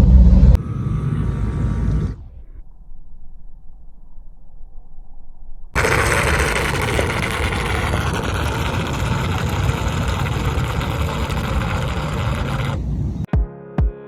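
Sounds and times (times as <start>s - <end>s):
toy boat motor churning water: 5.8s - 12.8s.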